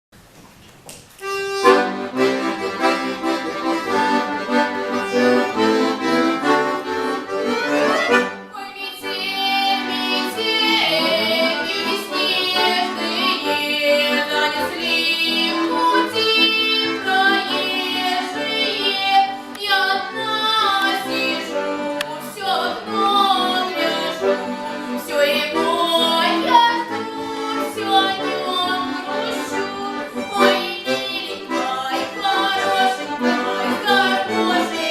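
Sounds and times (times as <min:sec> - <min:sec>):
accordion chords: 0:01.2 - 0:34.9
girl singing: 0:08.5 - 0:34.9.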